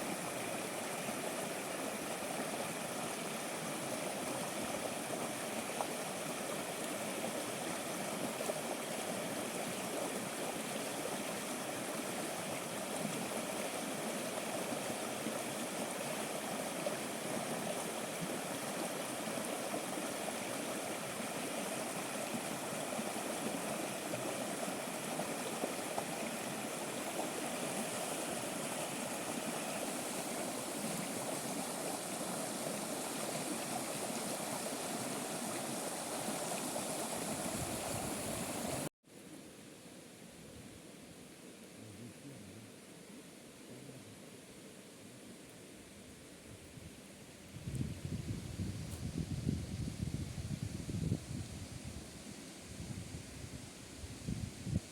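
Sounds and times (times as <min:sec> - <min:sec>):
running water rushing: 0:00.0 - 0:38.9.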